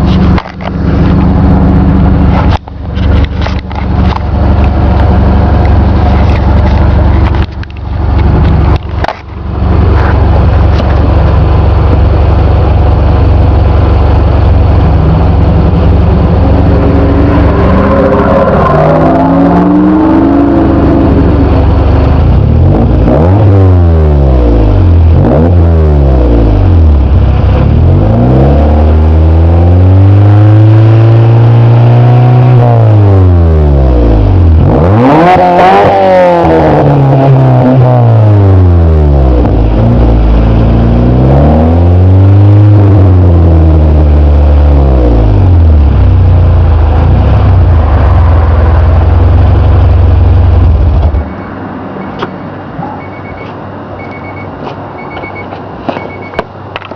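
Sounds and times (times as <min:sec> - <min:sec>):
car engine revving: 0:00.0 - 0:53.3.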